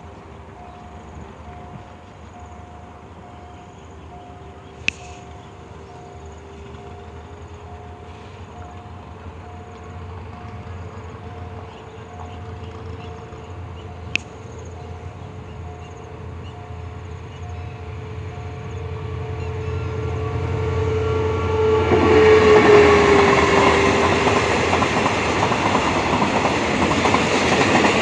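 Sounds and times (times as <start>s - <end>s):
freight train rumbling: 0.0s - 28.0s
sharp click: 4.8s - 5.2s.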